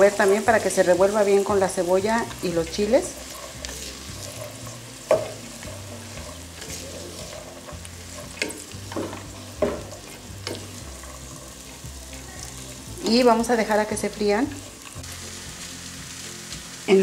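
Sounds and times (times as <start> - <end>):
corn kernels sizzling: 0.0 - 17.0
wooden spoon scraping pot: 2.2 - 12.9.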